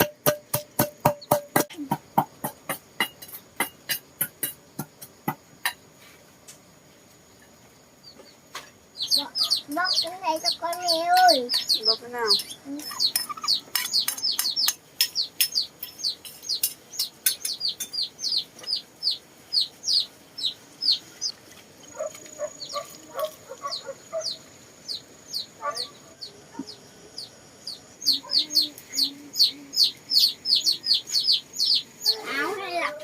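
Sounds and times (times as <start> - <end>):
chicks peeping: 8.0 - 32.9.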